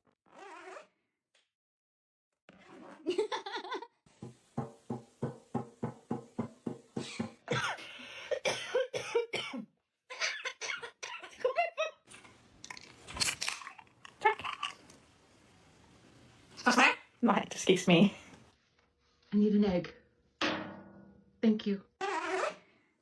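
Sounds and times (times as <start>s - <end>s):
parrot coughing sounds: 7.0s - 11.4s, 22.0s - 22.7s
parrot vocal sounds: 16.6s - 17.1s, 22.0s - 22.7s.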